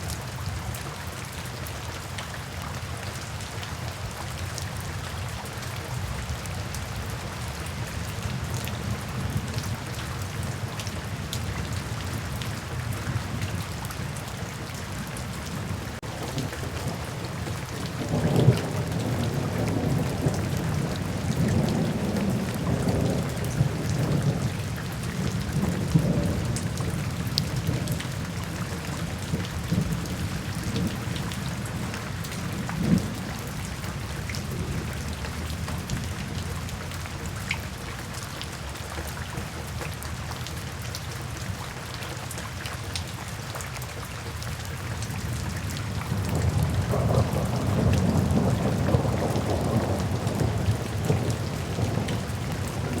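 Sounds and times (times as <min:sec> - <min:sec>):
steady rain: 0:00.0 - 0:53.0
rolling thunder: 0:15.7 - 0:33.4, 0:45.8 - 0:53.0.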